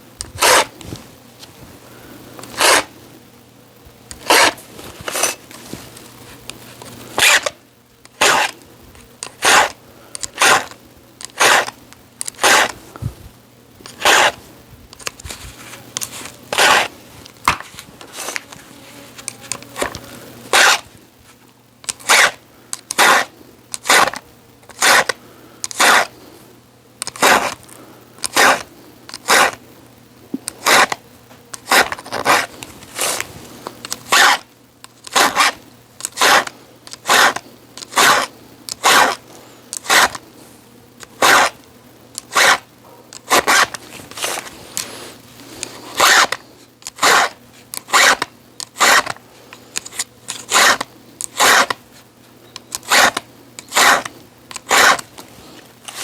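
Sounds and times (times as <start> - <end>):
hand tool scraping: 0.4 - 1.0, 2.4 - 2.9, 4.1 - 8.6, 9.2 - 12.8, 13.8 - 14.4, 15.0 - 20.9, 21.9 - 26.1, 27.1 - 27.6, 28.2 - 29.6, 30.6 - 31.0, 31.6 - 34.4, 35.0 - 40.2, 41.1 - 41.6, 42.2 - 51.8, 52.6 - 56.0.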